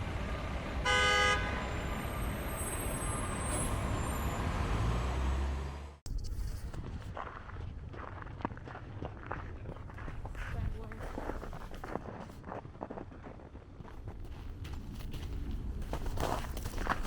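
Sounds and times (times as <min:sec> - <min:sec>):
street traffic noise: 0:00.0 - 0:06.0, 0:14.4 - 0:17.0
car horn toot: 0:00.8 - 0:03.3.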